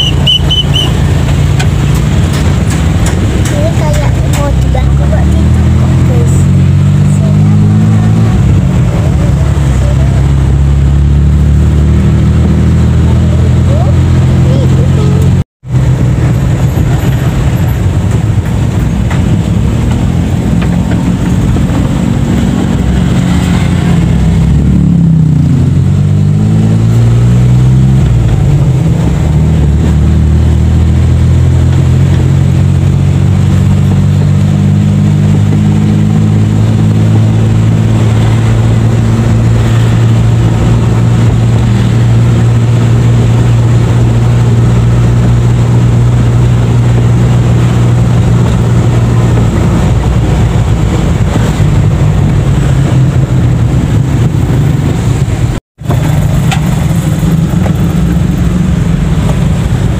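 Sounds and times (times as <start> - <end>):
small car engine running: 55.8 - 59.9.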